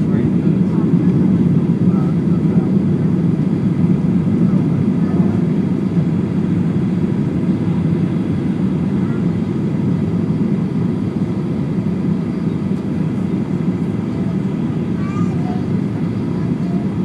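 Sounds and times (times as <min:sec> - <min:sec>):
airplane cabin engine roar: 0:00.0 - 0:17.0.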